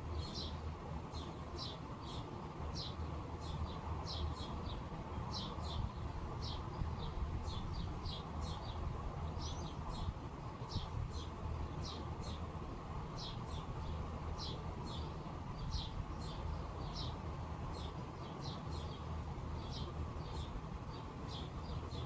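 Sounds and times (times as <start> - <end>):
bird chirping: 0.2 - 10.1.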